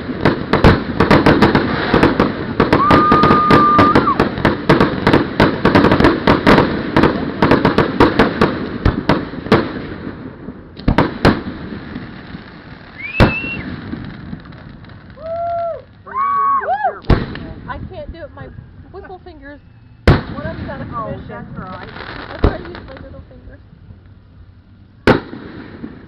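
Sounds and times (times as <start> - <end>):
fireworks crackling and banging: 0.0 - 26.0
firework rising whistle: 2.7 - 4.3, 12.8 - 13.8, 14.9 - 17.0.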